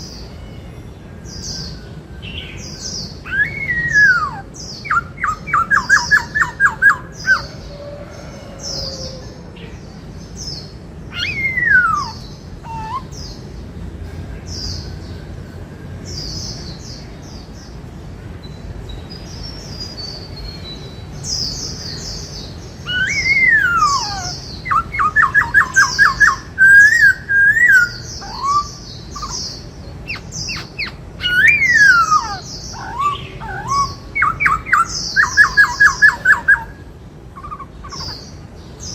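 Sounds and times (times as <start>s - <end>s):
high bird chirps: 2.4s - 7.5s, 11.1s - 13.4s, 19.8s - 38.9s
bird whistles and rattling song: 11.1s - 13.2s, 22.8s - 36.8s.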